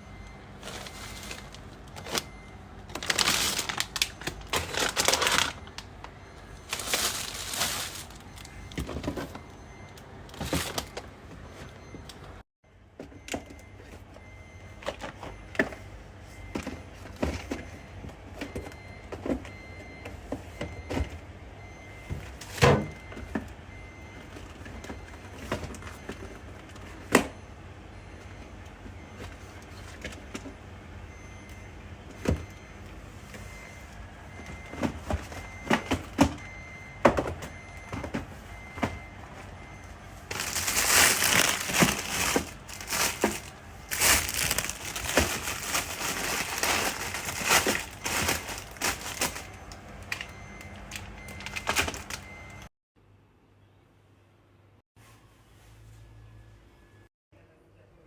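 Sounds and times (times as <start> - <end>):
loud rustling: 6.7 - 8.3, 40.3 - 49.6.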